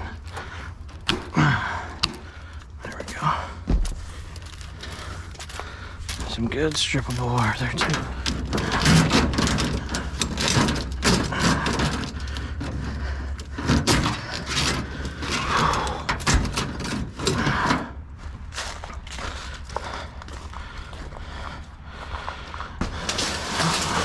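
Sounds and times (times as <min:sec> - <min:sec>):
scrap clattering and knocking: 0:02.8 - 0:17.9, 0:22.7 - 0:24.0.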